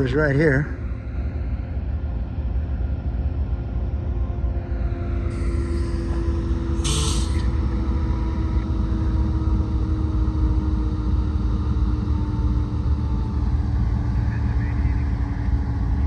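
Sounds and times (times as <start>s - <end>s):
diesel locomotives idling: 0.0s - 16.0s
air hissing: 6.8s - 7.5s.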